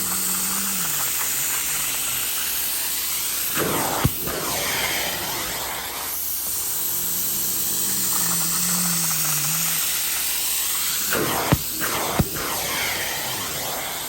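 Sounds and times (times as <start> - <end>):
carpet extractor spray and suction: 0.0 - 14.0.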